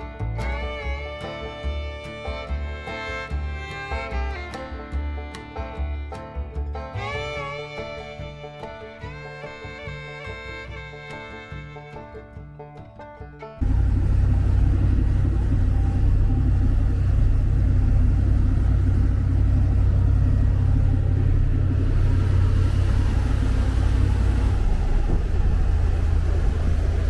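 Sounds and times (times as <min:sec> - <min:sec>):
boat engine low rumble: 0:13.6 - 0:27.0.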